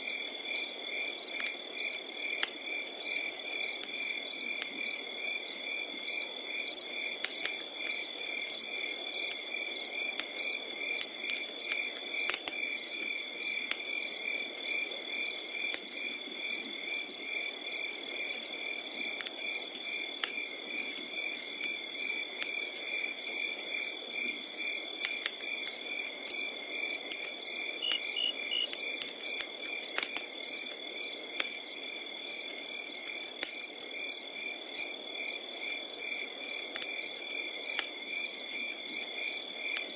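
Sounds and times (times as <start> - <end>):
crickets chirping: 0.0 - 39.9
wood fire crackling: 0.0 - 39.9
high insect trill: 18.5 - 29.4.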